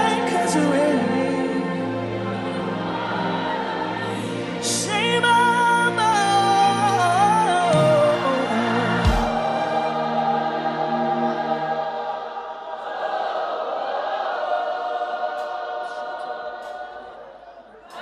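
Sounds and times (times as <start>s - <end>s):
choir singing held chords: 0.0s - 4.7s, 5.9s - 18.0s.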